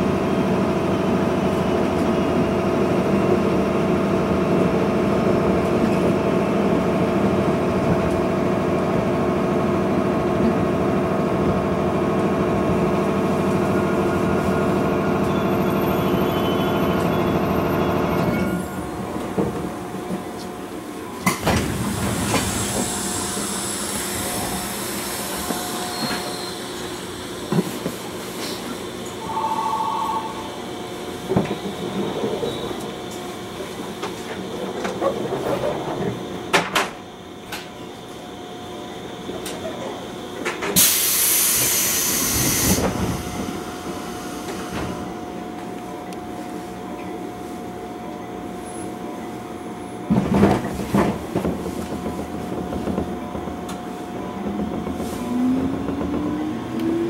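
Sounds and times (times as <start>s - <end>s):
train equipment hum and whine: 0.0s - 57.0s
short electronic beep: 29.2s - 30.6s.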